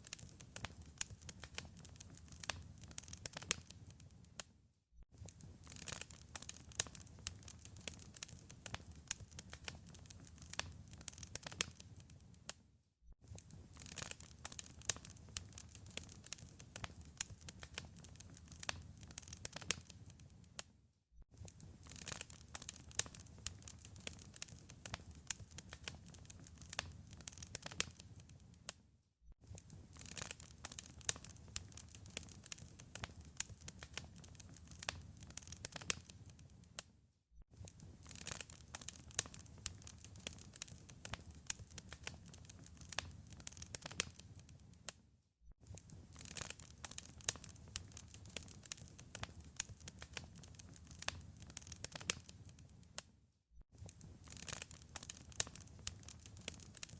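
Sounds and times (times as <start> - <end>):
wood fire crackling: 0.0 - 4.5, 5.2 - 12.6, 13.3 - 20.6, 21.4 - 28.8, 29.4 - 36.8, 37.6 - 44.9, 45.6 - 53.0, 53.8 - 56.9.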